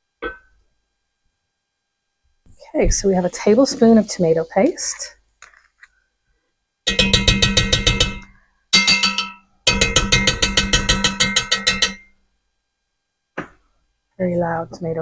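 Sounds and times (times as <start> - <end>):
metal spoon tapping ringing metal: 6.9 - 12.1.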